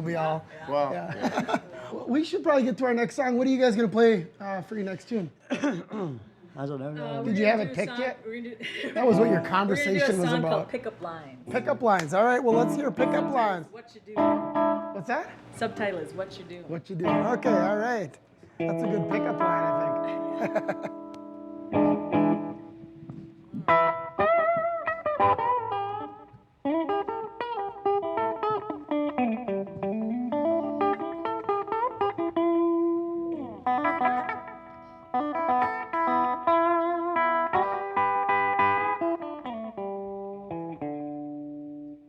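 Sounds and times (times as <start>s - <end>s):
electric guitar bending notes: 9.0s - 10.8s, 11.4s - 16.0s, 17.0s - 42.0s
blues band playing: 9.0s - 42.0s.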